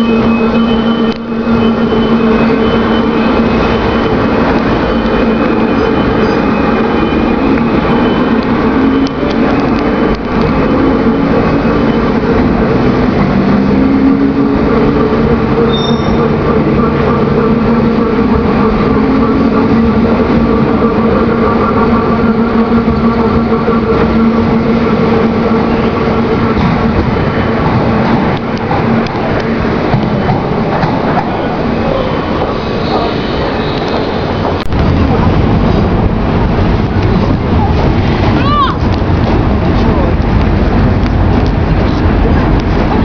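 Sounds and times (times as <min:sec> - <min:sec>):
train wheels rumbling: 0:00.0 - 0:43.0.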